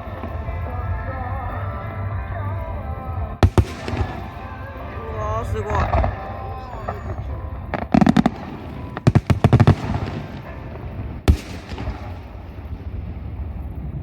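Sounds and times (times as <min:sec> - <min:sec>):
fireworks crackling bangs: 0:00.0 - 0:02.5, 0:03.4 - 0:14.0
low rumbling echo: 0:00.0 - 0:14.0
loud firework bang: 0:03.4 - 0:14.0.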